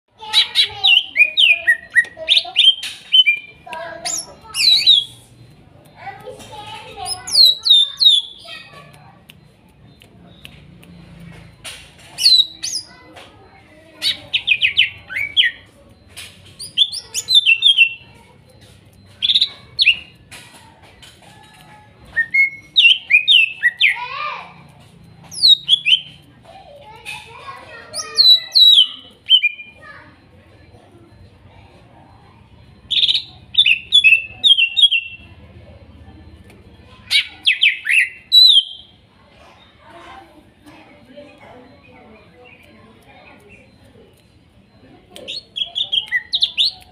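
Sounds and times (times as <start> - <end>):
bird whistling song: 0.6 - 5.4, 12.2 - 13.0, 16.6 - 18.0, 22.1 - 24.2, 25.3 - 26.2, 27.9 - 29.8, 32.9 - 35.3, 37.1 - 39.0, 45.2 - 46.9
bird singing whistled notes: 25.3 - 26.2, 27.9 - 29.8, 37.1 - 38.9.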